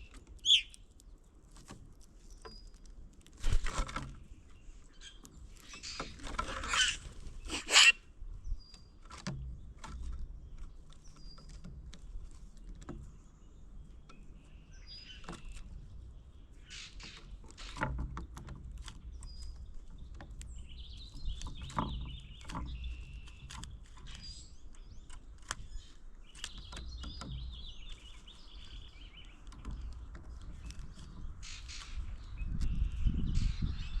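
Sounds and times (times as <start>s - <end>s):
songbirds chipping: 0.0s - 34.0s
harsh warbling bird calls: 0.4s - 0.7s, 5.8s - 8.1s.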